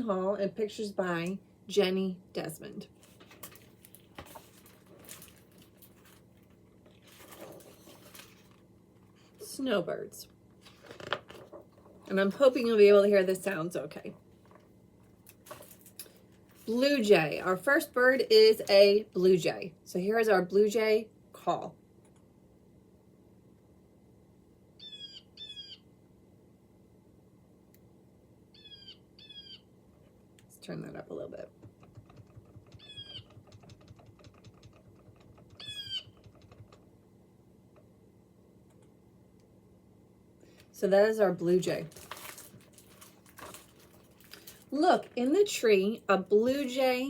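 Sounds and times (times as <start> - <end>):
soft handling rustles: 2.9 - 9.4, 14.3 - 17.0, 41.7 - 45.2
recorded blue jay calls: 24.8 - 25.9, 28.5 - 29.8, 32.6 - 33.6, 35.4 - 36.4.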